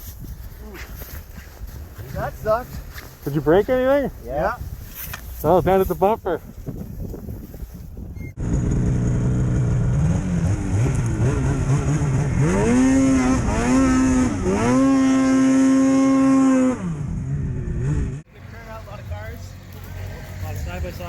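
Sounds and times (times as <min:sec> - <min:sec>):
vehicle engine revving: 0:08.4 - 0:18.4.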